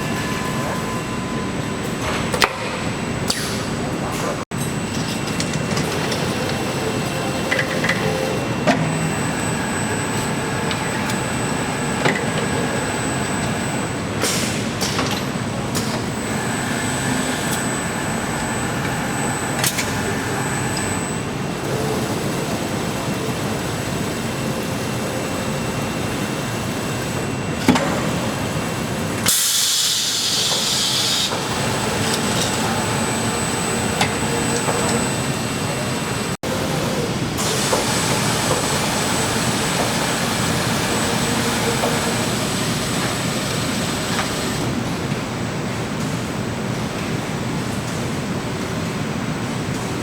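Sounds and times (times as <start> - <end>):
factory machinery running: 0.0 - 50.0.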